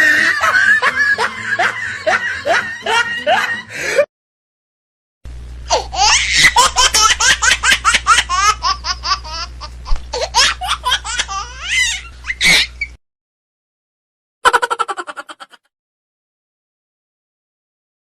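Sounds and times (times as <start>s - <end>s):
rapid high-pitched laughter: 0.0s - 4.0s, 5.7s - 12.9s, 14.4s - 15.7s
steady low hum: 5.3s - 13.0s.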